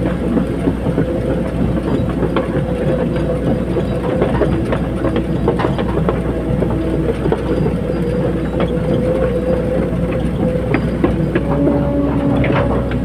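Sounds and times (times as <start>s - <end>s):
excavator diesel engine: 0.0s - 13.0s
metallic clanks and knocks: 10.0s - 13.0s.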